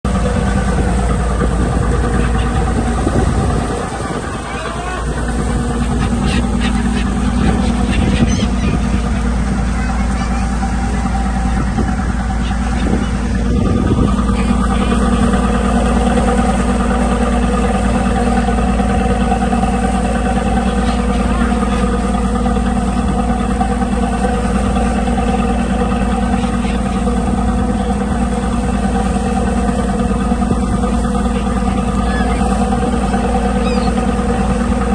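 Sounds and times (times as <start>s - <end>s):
engine droning steadily: 0.0s - 34.9s.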